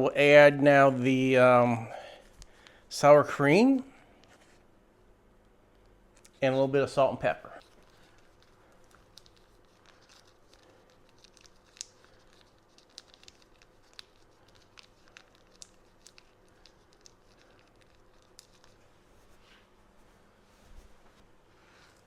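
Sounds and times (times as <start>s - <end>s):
faint steady hum: 0.0s - 22.0s
faint clicks and crackles: 7.6s - 18.9s.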